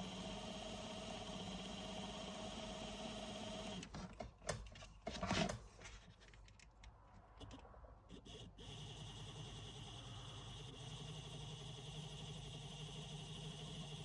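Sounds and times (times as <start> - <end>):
model train motor whining: 0.0 - 3.9, 8.1 - 14.0.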